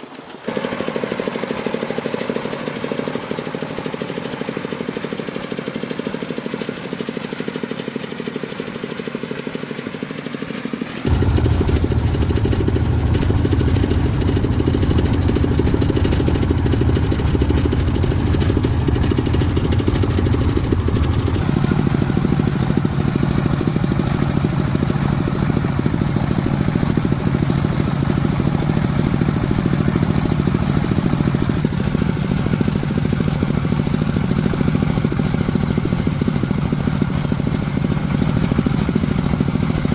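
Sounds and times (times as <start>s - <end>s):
truck engine rattling: 11.1s - 39.9s.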